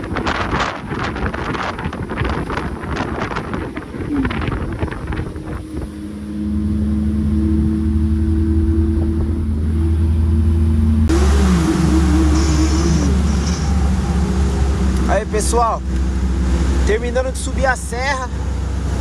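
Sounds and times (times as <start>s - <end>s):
wind buffeting microphone: 0.0s - 9.9s
car engine droning: 0.0s - 19.0s
wavering tone: 4.0s - 16.8s.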